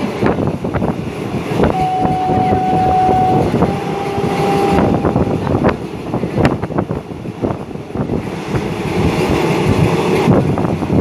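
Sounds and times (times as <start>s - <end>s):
train wheels rumbling and rattling: 0.0s - 11.0s.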